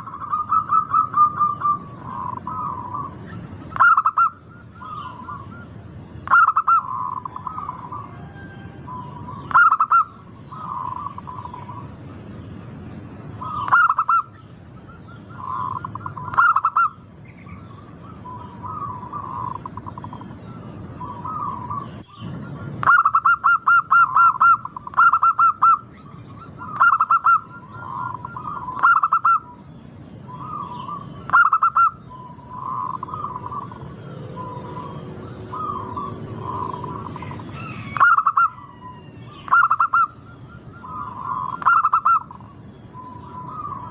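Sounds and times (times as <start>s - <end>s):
dove cooing: 0.0s - 12.0s, 13.3s - 29.6s, 30.2s - 43.9s.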